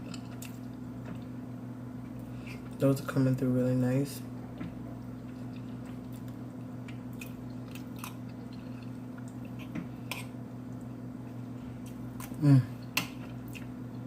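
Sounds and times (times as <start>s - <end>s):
person chewing food: 0.0s - 1.4s, 4.9s - 11.0s, 11.7s - 14.0s
steady low hum: 0.0s - 14.0s.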